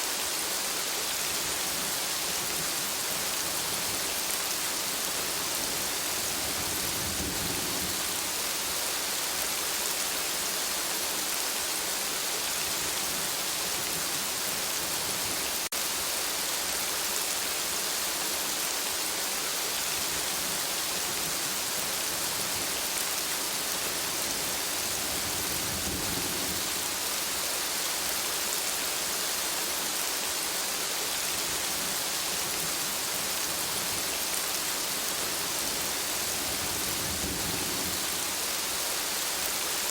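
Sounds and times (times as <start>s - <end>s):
steady rain hiss: 0.0s - 39.9s
faint thunder rumbles: 2.5s - 9.0s, 21.4s - 27.6s, 31.6s - 38.8s.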